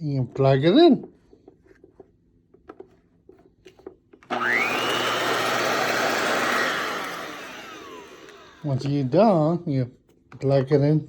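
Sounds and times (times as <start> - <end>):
vacuum cleaner motor whining: 4.2 - 9.4.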